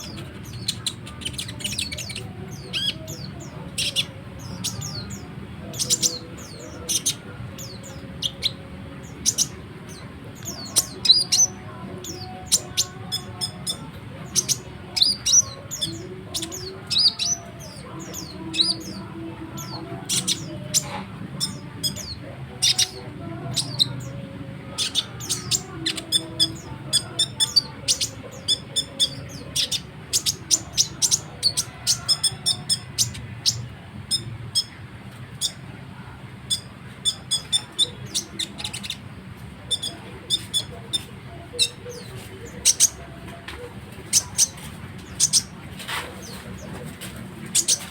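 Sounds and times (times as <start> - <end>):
bird chattering song: 0.0 - 47.9.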